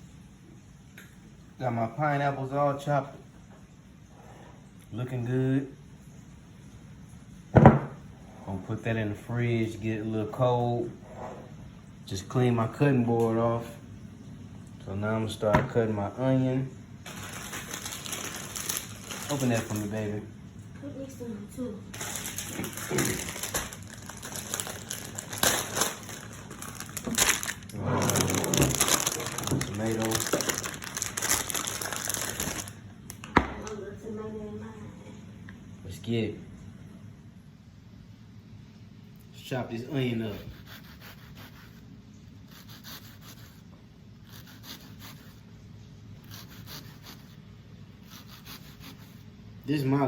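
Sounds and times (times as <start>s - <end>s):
low steady hum: 0.0s - 50.0s
dry material crinkling: 17.0s - 20.2s, 21.9s - 32.8s.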